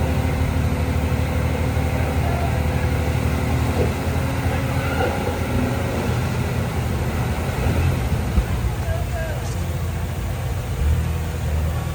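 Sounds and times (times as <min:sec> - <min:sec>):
diesel engine droning: 0:00.0 - 0:11.9.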